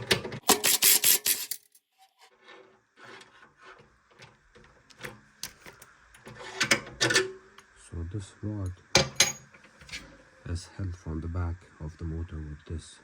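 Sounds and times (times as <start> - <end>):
metallic clicks and scrapes: 0.0 - 7.3
ratchet wrench clicking: 0.5 - 1.6.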